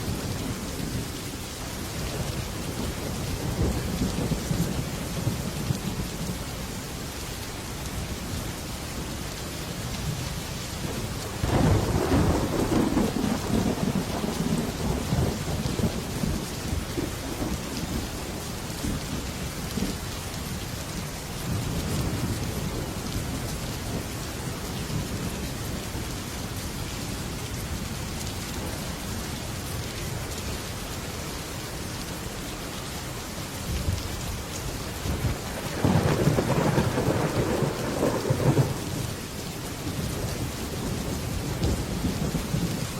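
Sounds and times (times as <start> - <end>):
heavy rain on a metal roof: 0.0 - 42.9
thunder rumbling: 2.0 - 6.4, 10.8 - 18.0, 34.9 - 39.2.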